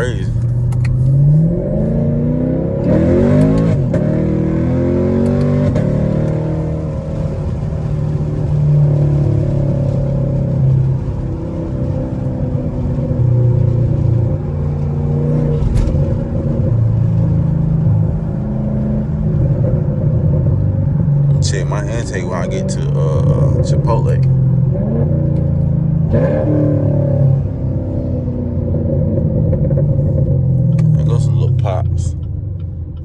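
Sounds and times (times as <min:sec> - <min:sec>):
car engine revving and cruising: 0:00.0 - 0:33.0.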